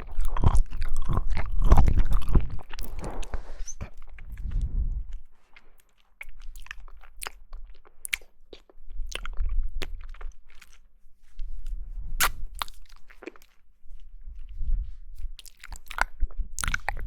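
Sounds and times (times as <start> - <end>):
chewing and biting jelly: 0.0 - 14.6, 15.2 - 17.0
low rumbling: 0.8 - 5.3.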